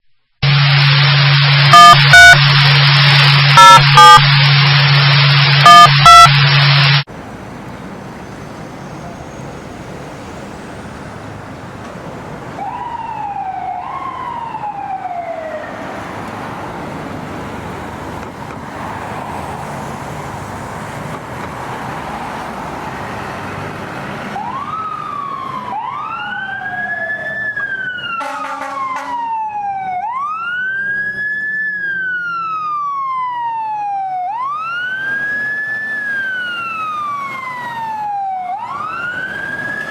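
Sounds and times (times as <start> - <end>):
short loud horn blast: 0.4 - 7.0, 28.2 - 29.2
fire truck siren wailing: 0.4 - 7.1, 12.2 - 39.9
loud buzzing tone: 0.4 - 7.1
steady traffic noise: 0.4 - 39.9.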